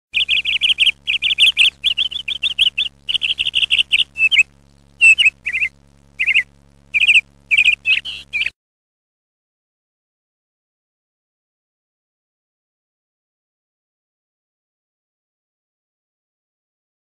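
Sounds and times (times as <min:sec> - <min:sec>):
faint low hum: 0:00.2 - 0:08.5
small bird chirping: 0:00.2 - 0:08.5.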